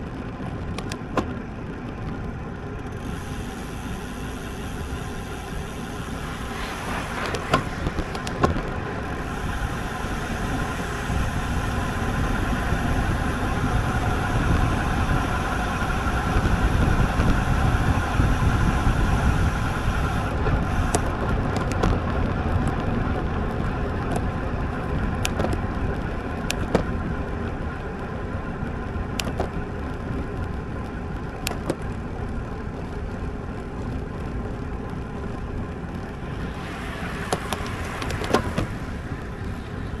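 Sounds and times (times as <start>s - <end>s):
bike tyre road noise: 0.0s - 40.0s
wind rushing over microphone: 3.6s - 27.7s, 34.9s - 40.0s.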